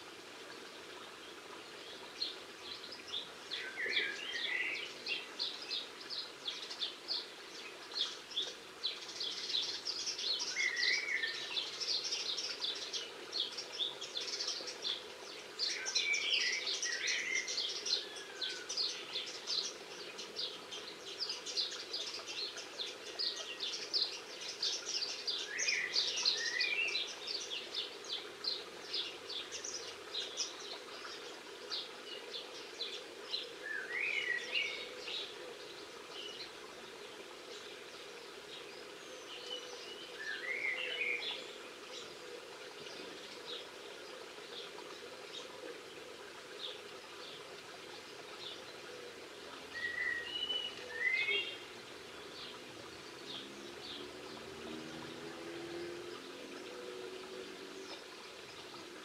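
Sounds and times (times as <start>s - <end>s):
birds twittering and chirping: 0.5s - 59.0s.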